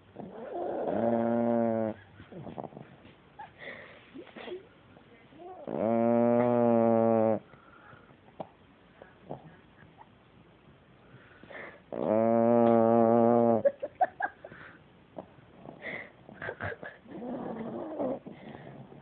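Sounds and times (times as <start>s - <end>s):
dog snoring loudly: 0.2s - 2.9s, 5.6s - 7.5s, 11.9s - 13.7s, 15.6s - 16.0s, 17.1s - 19.0s.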